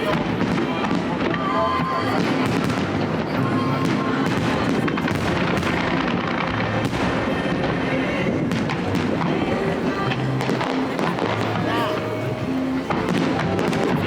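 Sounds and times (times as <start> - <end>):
background music: 0.0 - 14.0
fireworks bangs and crackle: 0.0 - 14.0.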